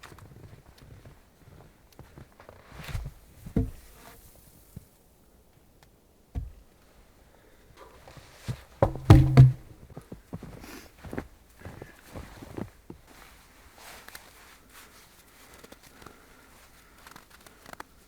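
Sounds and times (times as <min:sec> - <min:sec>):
brief hollow ring: 0:08.8 - 0:09.7
objects knocking and thudding: 0:08.8 - 0:09.7.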